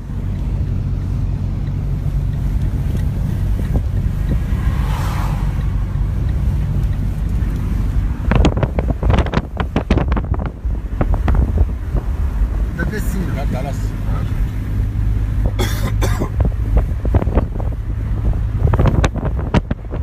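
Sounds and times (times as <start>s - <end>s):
storm wind buffeting microphone: 3.1s - 12.8s, 16.4s - 20.0s.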